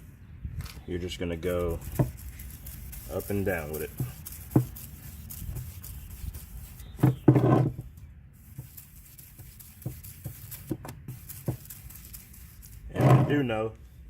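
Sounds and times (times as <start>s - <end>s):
sanding pad rubbing on plastic: 1.5s - 7.7s, 8.4s - 13.4s.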